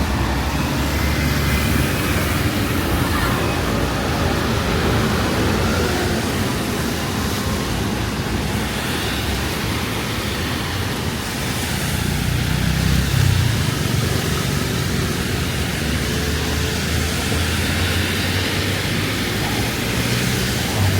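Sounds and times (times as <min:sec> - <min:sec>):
city traffic: 0:00.0 - 0:20.9
rain hiss: 0:00.0 - 0:20.9.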